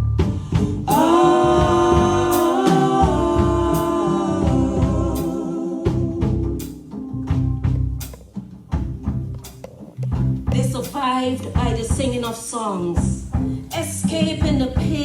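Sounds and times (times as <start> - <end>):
drum hits: 0.0 - 13.8
gospel singing voices: 0.5 - 7.1.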